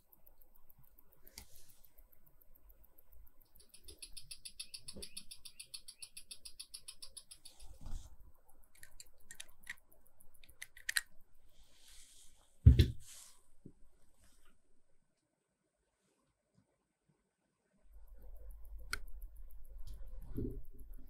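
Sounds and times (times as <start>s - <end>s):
light clicks of watch dial: 0.0s - 11.3s, 18.1s - 21.0s
watch movement ticking: 0.0s - 12.4s, 17.9s - 21.0s.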